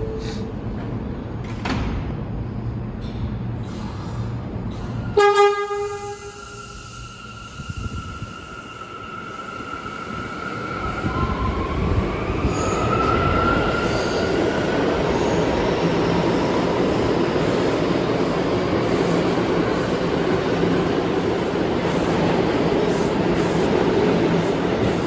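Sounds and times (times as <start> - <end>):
rising train whine: 0.0 - 25.0
subway train wheels rumbling: 0.0 - 25.0.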